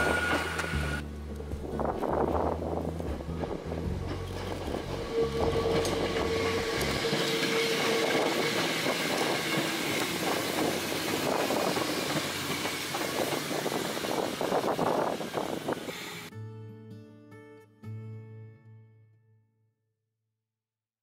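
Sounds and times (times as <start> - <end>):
electric train passing: 0.0 - 16.3
wheels clattering over rail joints: 1.9 - 15.8
steady high tone: 4.1 - 10.6.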